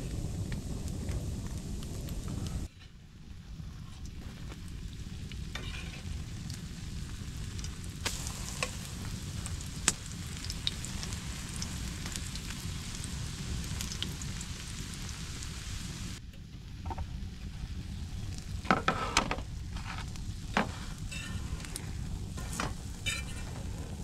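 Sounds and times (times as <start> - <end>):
food sizzling over fire: 0.0 - 24.0
crackling pops: 7.4 - 14.8.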